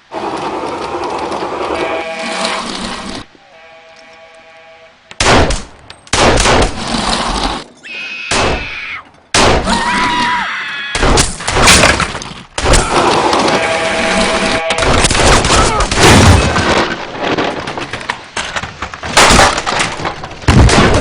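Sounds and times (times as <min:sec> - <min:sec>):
loud gunshots: 0:05.2 - 0:06.8
crashes: 0:11.0 - 0:21.0.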